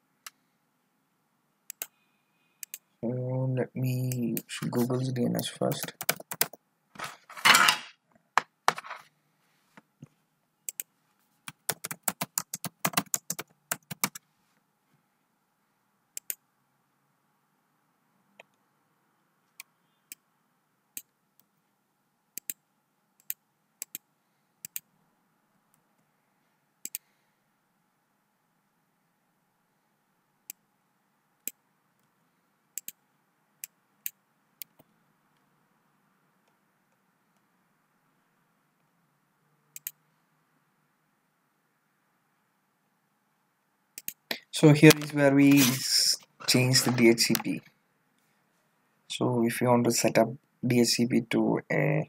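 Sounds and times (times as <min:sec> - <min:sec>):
computer mouse clicking: 0:01.7 - 0:02.0, 0:02.6 - 0:02.8, 0:05.7 - 0:06.6, 0:10.7 - 0:14.2, 0:16.2 - 0:16.4, 0:22.4 - 0:22.6, 0:23.2 - 0:24.9, 0:26.8 - 0:27.1, 0:32.8 - 0:33.0, 0:39.7 - 0:40.0, 0:44.0 - 0:44.3
keyboard typing: 0:01.7 - 0:02.0, 0:04.0 - 0:06.6, 0:10.7 - 0:14.2, 0:44.8 - 0:47.6.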